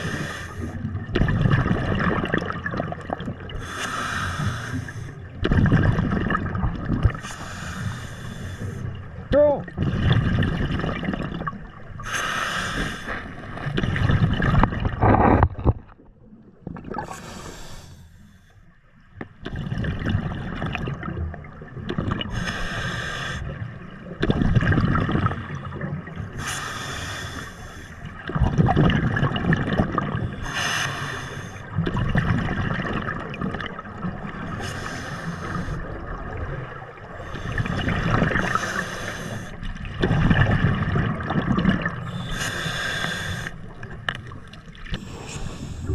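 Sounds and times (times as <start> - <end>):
gurgling exhaled bubbles: 0.0 - 7.6, 9.1 - 17.6, 19.4 - 22.8, 23.4 - 26.5, 28.0 - 45.9
regulator hissing inhale: 3.6 - 5.2, 7.2 - 8.9, 12.0 - 13.2, 17.1 - 18.6, 22.4 - 23.5, 26.4 - 28.0, 30.4 - 31.6, 34.6 - 35.9, 38.4 - 39.6, 42.1 - 43.6, 45.0 - 45.9.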